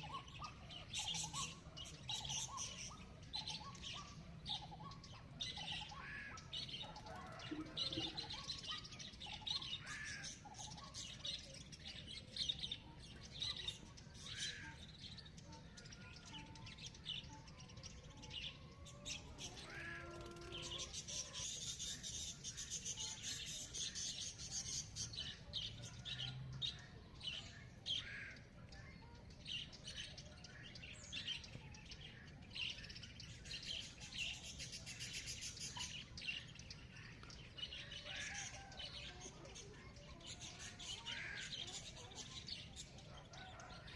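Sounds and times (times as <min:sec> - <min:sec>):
small birds chirping: 0:00.0 - 0:43.9
high bird trill: 0:18.5 - 0:25.5
lower clear bird call: 0:19.1 - 0:21.5.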